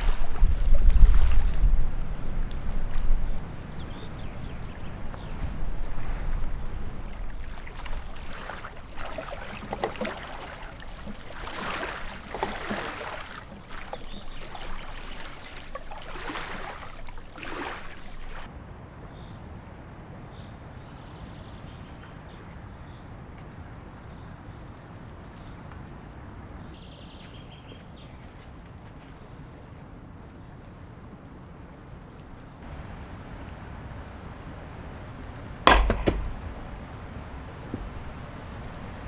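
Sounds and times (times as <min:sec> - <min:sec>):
water splashing around boat: 0:00.0 - 0:18.5, 0:32.1 - 0:39.0
faint bird chirps: 0:13.7 - 0:16.0.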